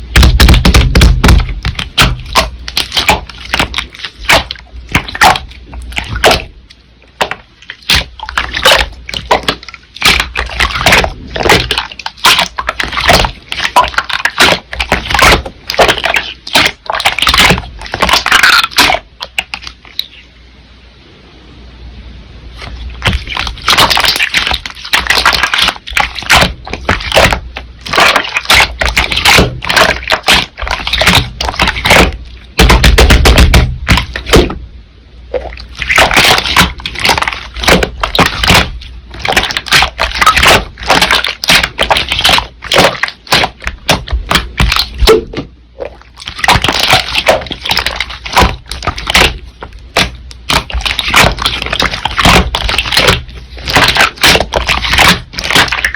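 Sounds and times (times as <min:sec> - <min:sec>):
slime squished by hand: 0:00.0 - 0:20.2, 0:22.5 - 0:34.6, 0:35.3 - 0:55.9.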